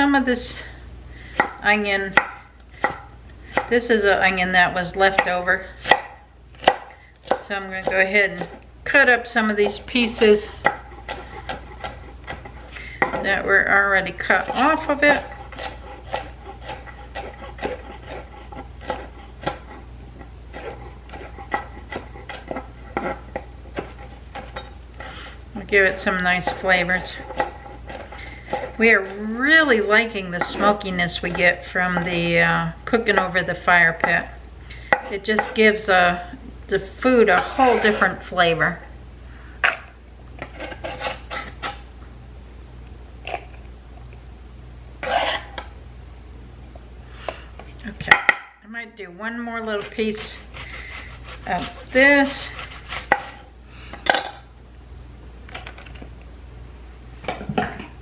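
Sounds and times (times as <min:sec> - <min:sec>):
knife slicing scrapes: 0:09.6 - 0:12.8, 0:14.2 - 0:19.9, 0:20.5 - 0:32.2, 0:37.3 - 0:38.2, 0:40.4 - 0:41.8, 0:45.0 - 0:45.6, 0:49.7 - 0:53.5.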